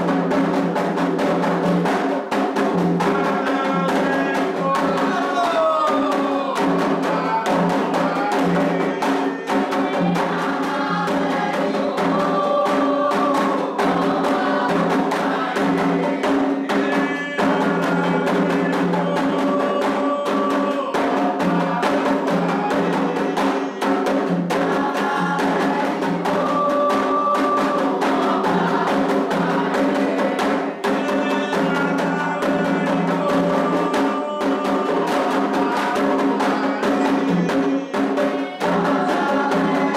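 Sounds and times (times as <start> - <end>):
chorus of voices singing: 0.0 - 39.9
hand drums: 0.0 - 39.9.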